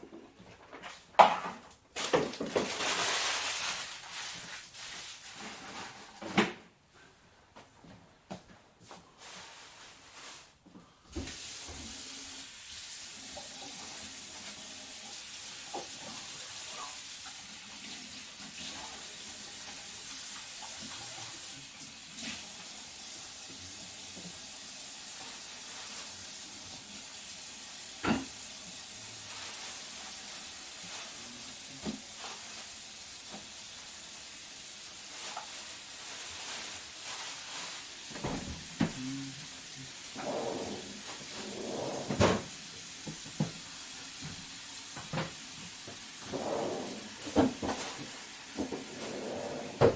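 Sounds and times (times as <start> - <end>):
kitchen tap running: 11.1 - 30.9, 39.5 - 48.9.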